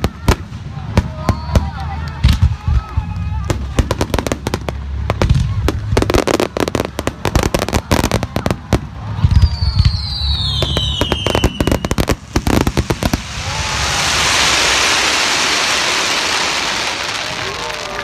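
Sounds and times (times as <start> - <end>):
firework crackling: 0.0 - 18.0
falling firework whistle: 1.0 - 3.3, 9.1 - 18.0
rushing hiss: 12.1 - 17.7.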